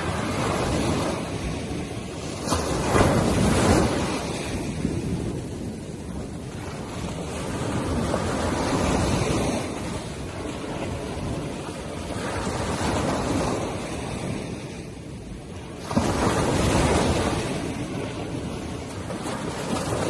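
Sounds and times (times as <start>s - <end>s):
surf washing up beach: 0.0s - 20.0s
waves breaking: 0.0s - 20.0s
wind buffeting microphone: 0.0s - 20.0s.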